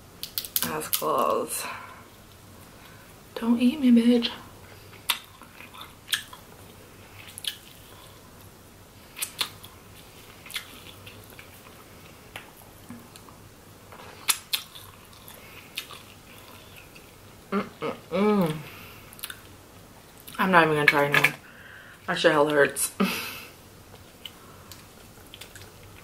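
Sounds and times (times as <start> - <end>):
crab shell cracking: 0.2 - 1.0.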